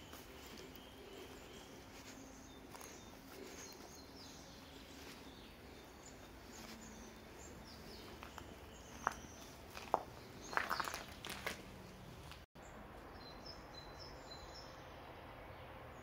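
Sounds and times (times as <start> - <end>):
faint birds chirping: 0.0 - 16.0.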